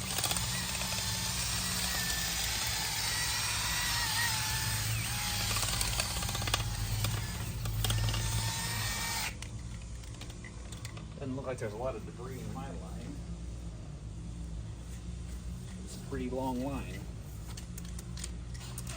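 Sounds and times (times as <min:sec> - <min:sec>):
power drill whining: 0:00.0 - 0:09.5, 0:18.5 - 0:18.9.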